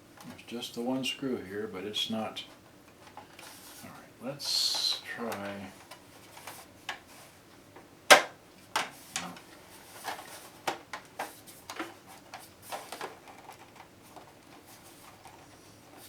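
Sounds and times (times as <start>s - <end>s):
loud sharp plastic snap: 8.1s - 9.3s.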